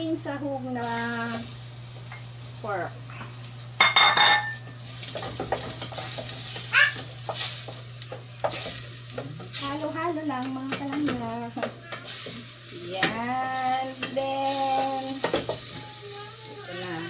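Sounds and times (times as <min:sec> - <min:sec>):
meat sizzling in a pot: 0:00.0 - 0:17.0
wooden spatula scraping a pot: 0:04.8 - 0:09.8.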